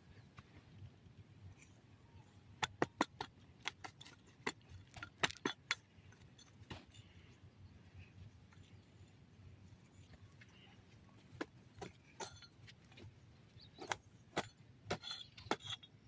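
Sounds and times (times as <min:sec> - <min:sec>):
sharp clicks and knocks: 0:02.6 - 0:05.8.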